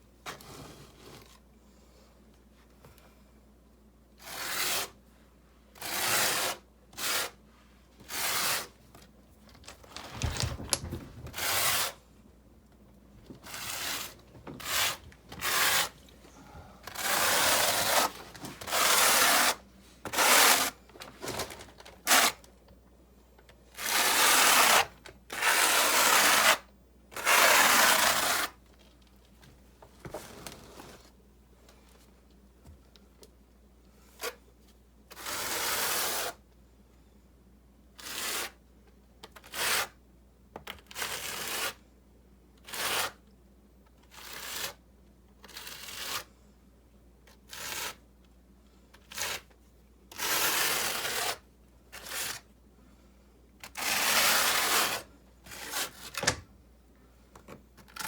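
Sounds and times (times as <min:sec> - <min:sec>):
masonry tool scraping mortar: 0:08.1 - 0:08.7, 0:10.2 - 0:12.0, 0:13.5 - 0:16.0, 0:16.9 - 0:20.8, 0:23.8 - 0:26.6.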